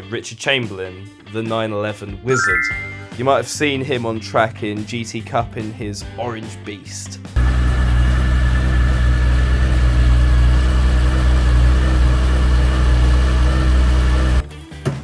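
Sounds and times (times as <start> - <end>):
car engine idling: 7.4 - 14.4.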